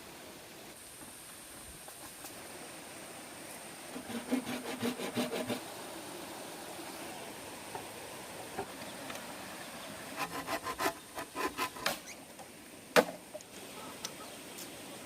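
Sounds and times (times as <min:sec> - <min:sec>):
bamboo being sawn by hand: 0:03.9 - 0:05.7, 0:10.2 - 0:12.2.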